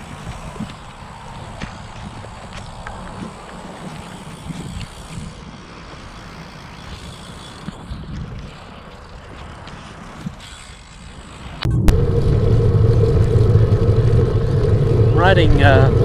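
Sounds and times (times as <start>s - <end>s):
bicycle tyre road noise: 0.0s - 16.0s
wind buffeting microphone: 11.6s - 16.0s.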